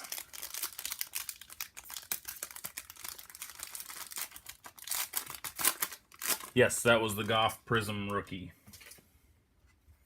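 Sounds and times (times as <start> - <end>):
wrapper crinkling: 0.0 - 7.5.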